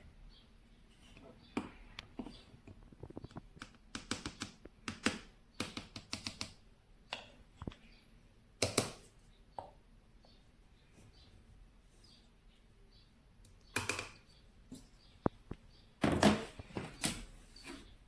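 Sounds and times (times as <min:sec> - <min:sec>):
hard objects clicking and knocking: 0:01.6 - 0:07.8.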